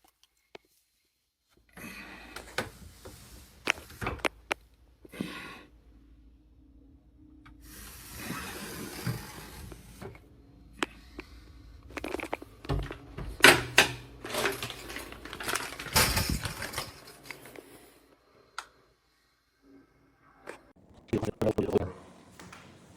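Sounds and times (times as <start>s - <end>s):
clattering and rustling in cabinet: 12.1s - 17.5s.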